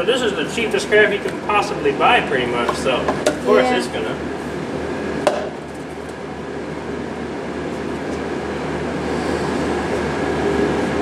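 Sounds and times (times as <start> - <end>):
steady mechanical drone: 0.0 - 11.0.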